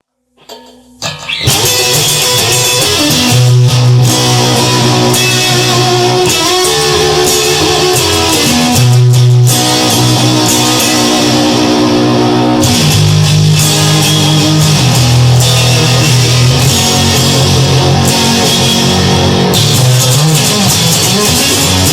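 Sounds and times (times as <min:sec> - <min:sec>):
electric guitar rock music: 0:00.4 - 0:21.9
bass line: 0:01.5 - 0:21.9.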